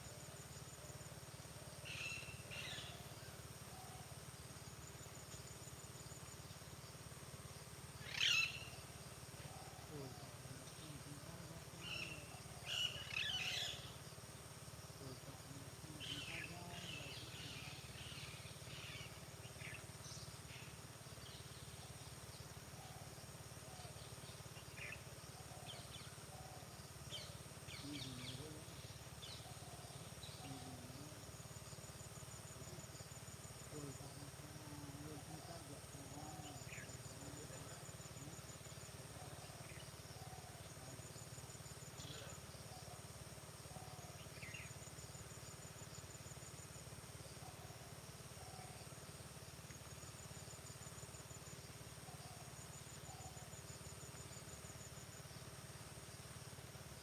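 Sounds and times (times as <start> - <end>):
faint high hum of insects: 0.0 - 57.0
birds chirping and calling: 1.8 - 3.1, 8.0 - 14.0, 15.2 - 20.8.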